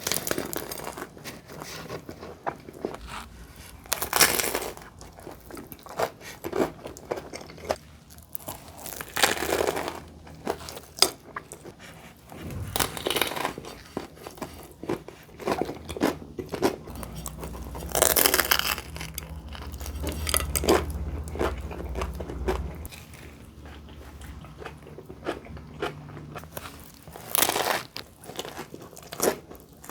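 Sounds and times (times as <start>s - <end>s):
chewing: 15.8s - 29.9s.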